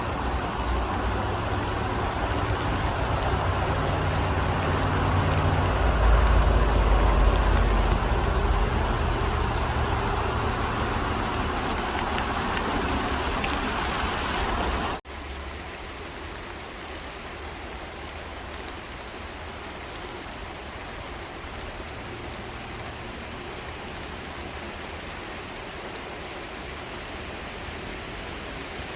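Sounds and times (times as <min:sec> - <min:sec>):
road traffic rumble: 0:00.0 - 0:15.4, 0:20.0 - 0:25.9
rain hiss: 0:00.0 - 0:28.9.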